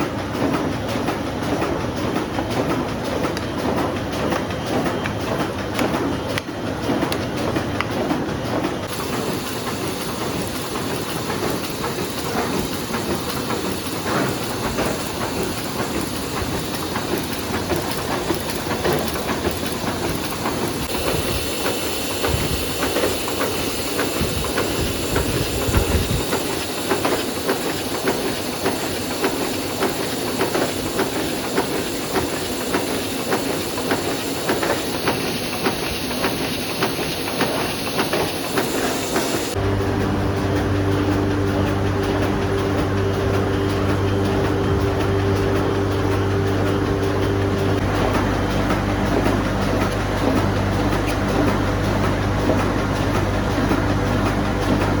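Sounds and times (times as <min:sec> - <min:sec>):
printing press clattering: 0:00.0 - 0:55.0.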